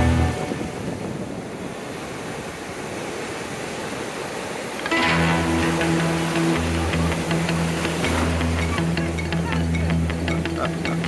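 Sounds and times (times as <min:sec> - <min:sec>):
music: 0:00.0 - 0:00.7, 0:04.9 - 0:11.0
wind noise: 0:00.0 - 0:06.2
sea waves breaking on shore: 0:00.0 - 0:11.0.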